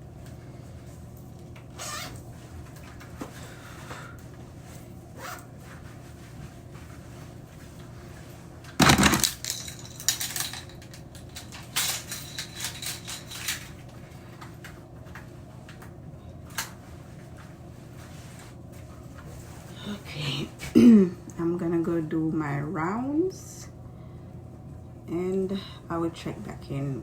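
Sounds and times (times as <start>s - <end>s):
steady low hum: 0.0s - 27.0s
small objects clattering: 8.8s - 13.7s.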